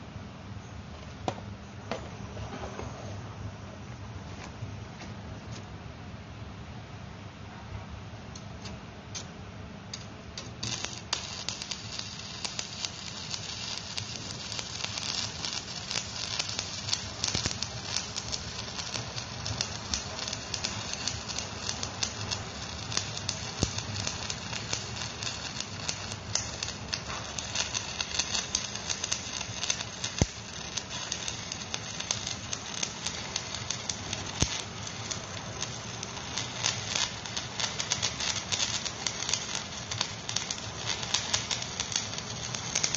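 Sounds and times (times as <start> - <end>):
quiet hiss: 0.0 - 42.9
welding arc crackling: 9.9 - 42.9.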